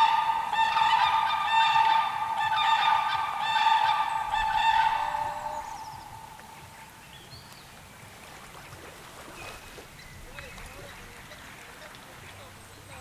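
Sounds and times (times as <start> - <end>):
loud bird calls: 0.0 - 7.6.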